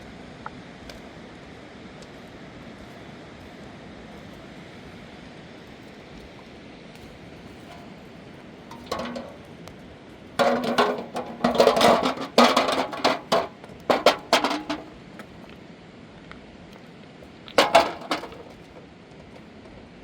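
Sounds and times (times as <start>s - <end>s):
hard objects knocking and clinking: 8.7s - 9.4s, 10.4s - 15.0s, 17.6s - 18.8s.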